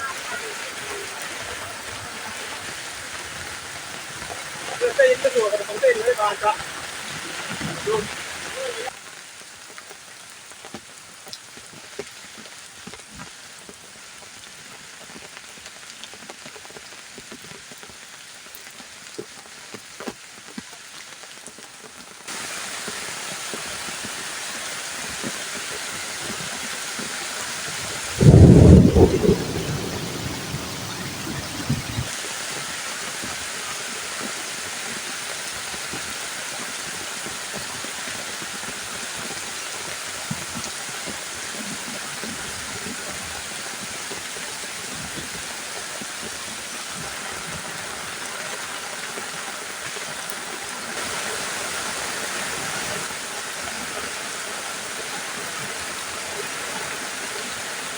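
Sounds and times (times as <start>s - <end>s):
heavy rain falling: 0.0s - 57.9s
thunder clap and rumble: 27.8s - 32.1s.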